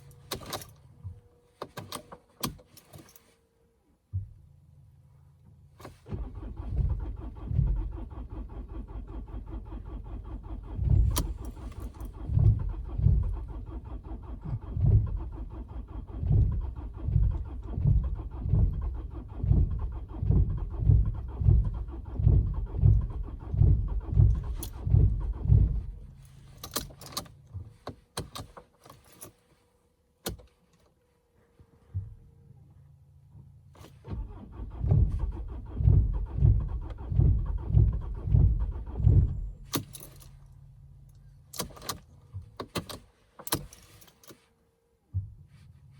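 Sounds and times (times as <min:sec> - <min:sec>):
diesel engine cranking: 0:05.8 - 0:29.4, 0:33.9 - 0:44.5.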